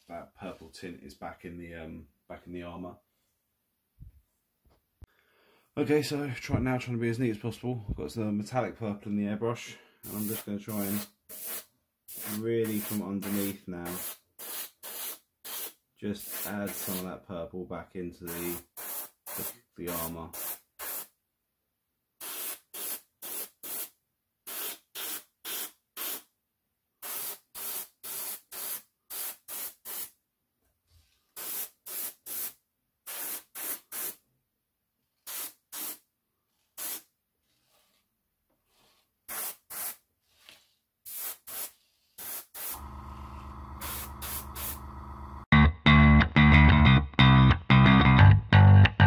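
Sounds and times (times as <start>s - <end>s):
airbrush spraying hiss: 10.0s - 17.0s, 18.3s - 21.1s, 22.2s - 23.9s, 24.5s - 26.2s, 27.0s - 30.1s, 31.4s - 34.2s, 35.3s - 36.0s, 36.8s - 37.0s, 39.3s - 40.0s, 41.1s - 45.0s
music: 45.5s - 49.0s.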